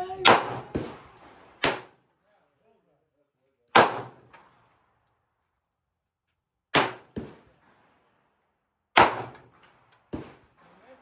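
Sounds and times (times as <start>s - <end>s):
handgun shots: 0.2s - 1.0s, 1.6s - 1.9s, 3.7s - 4.2s, 6.8s - 7.3s, 9.0s - 9.4s.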